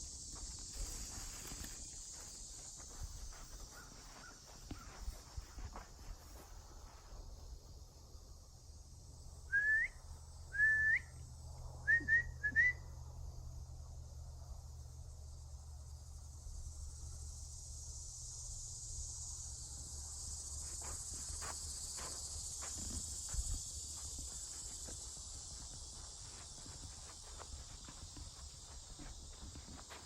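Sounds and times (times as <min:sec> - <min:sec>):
insects chorus: 0:00.0 - 0:30.0
whistled notes: 0:09.5 - 0:10.0, 0:10.6 - 0:11.2, 0:11.9 - 0:12.8.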